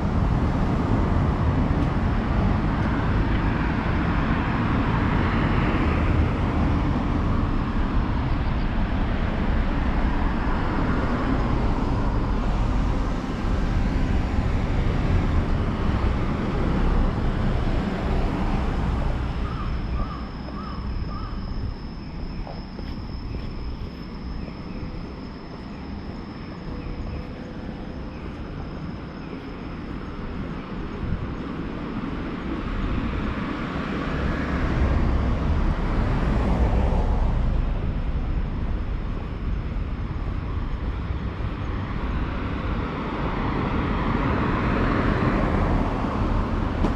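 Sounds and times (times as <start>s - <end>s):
road traffic passing: 0.0s - 46.9s
steady high-pitched tone: 10.6s - 32.0s.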